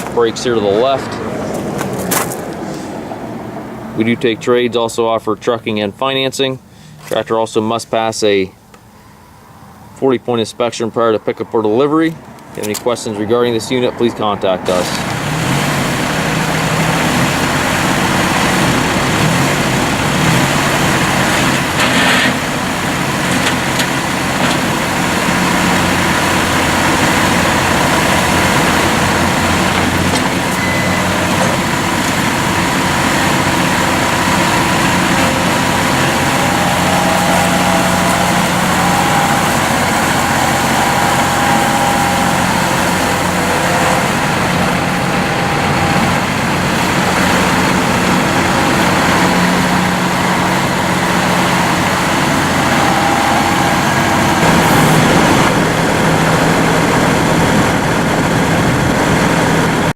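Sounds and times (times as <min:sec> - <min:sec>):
tractor diesel engine running: 0:00.0 - 0:10.0, 0:11.6 - 0:59.9
faint high whine: 0:29.8 - 0:49.5, 0:51.2 - 0:56.9.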